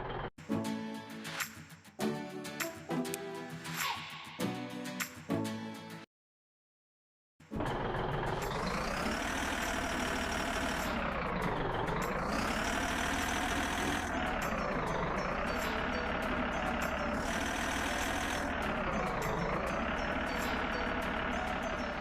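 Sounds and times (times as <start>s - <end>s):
truck engine rising and falling: 0.0s - 0.3s, 7.5s - 22.0s.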